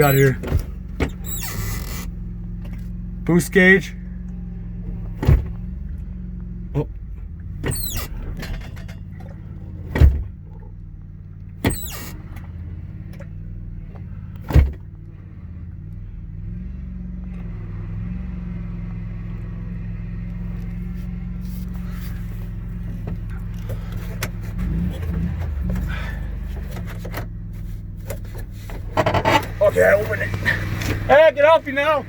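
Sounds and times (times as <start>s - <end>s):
squeaky creaks: 0.0s - 2.2s, 7.6s - 9.2s, 11.6s - 12.5s, 28.1s - 29.8s
riding lawnmower engine running: 0.0s - 32.0s
loud clunks: 5.0s - 5.8s, 7.6s - 10.4s.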